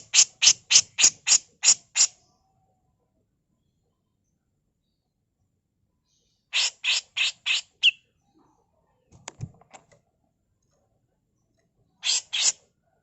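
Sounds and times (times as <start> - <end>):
bird giving harsh rasping calls: 0.0 - 2.2, 6.5 - 8.0, 12.0 - 12.6.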